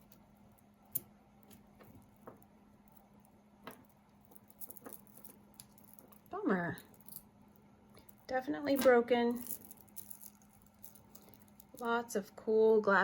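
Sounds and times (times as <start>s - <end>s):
faint steady hum: 0.0s - 13.0s
glass beads clicking: 3.7s - 7.3s, 8.0s - 12.0s.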